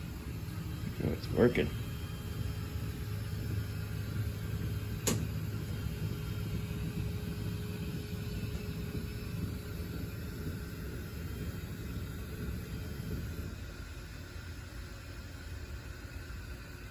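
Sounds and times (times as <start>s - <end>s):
printer motors humming: 0.0s - 9.9s
faint whine: 0.0s - 13.6s
sharp click: 5.0s - 5.3s.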